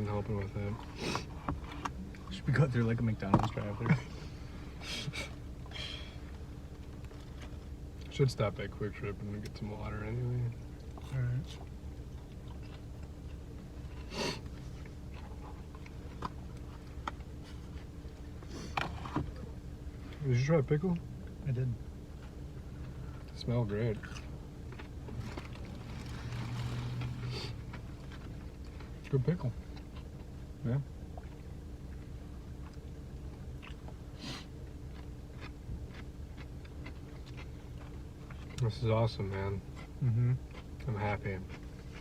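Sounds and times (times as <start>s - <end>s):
low hum inside car cabin: 0.0s - 42.0s
people chewing food: 0.4s - 2.4s, 3.1s - 8.1s, 10.5s - 20.2s, 22.1s - 42.0s
rustle: 25.1s - 29.0s.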